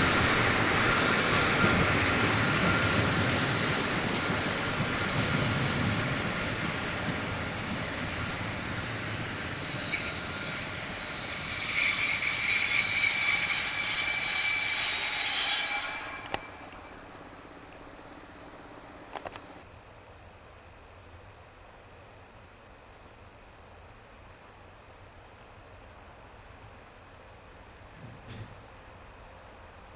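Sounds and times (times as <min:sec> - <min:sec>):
high-pitched metallic squealing: 0:00.0 - 0:19.0
train rumbling on rails: 0:00.0 - 0:19.7.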